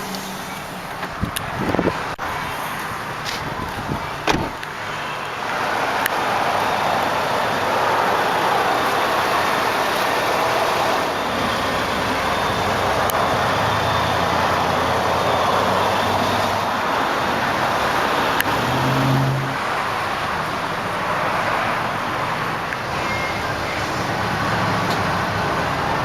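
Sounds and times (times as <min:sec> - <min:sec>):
car engine idling: 0:00.0 - 0:18.5
road traffic: 0:00.0 - 0:26.0.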